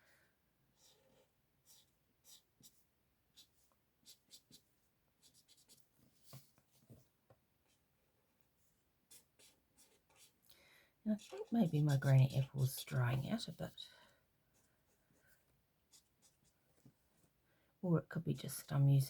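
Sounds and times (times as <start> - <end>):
marker scratching on card: 0.8 - 5.8, 9.1 - 10.4, 11.2 - 12.4.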